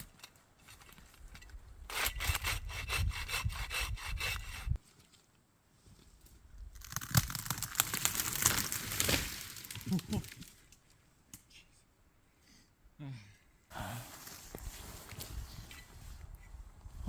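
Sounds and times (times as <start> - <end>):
hand saw cutting wood: 1.9 - 4.8.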